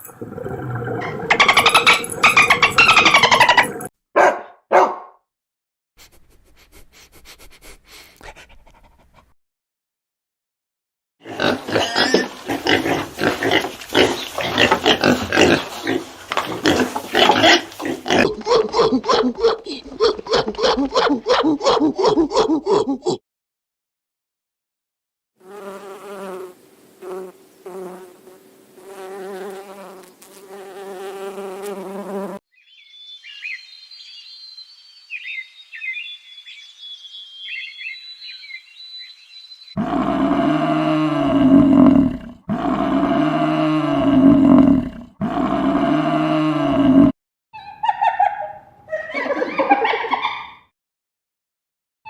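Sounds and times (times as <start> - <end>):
loud long animal calls: 0.2 - 3.9, 39.8 - 47.1
insect buzzing: 25.4 - 32.4.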